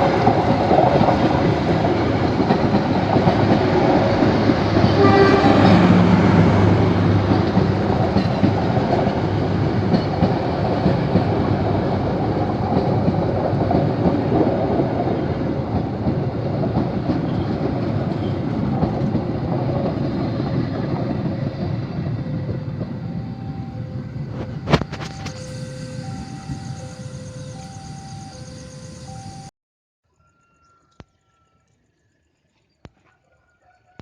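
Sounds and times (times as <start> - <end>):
train wheels clattering on track: 0.0 - 23.3.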